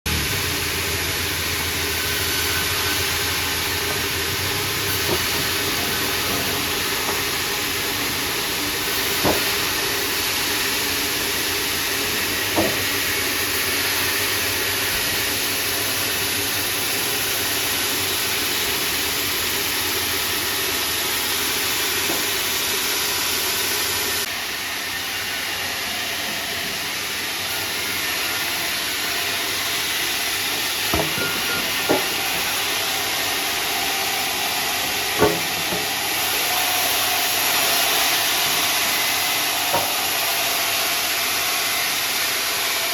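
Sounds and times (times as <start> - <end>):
sawmill machinery hissing: 0.1 - 42.9
short knocks: 35.2 - 36.0.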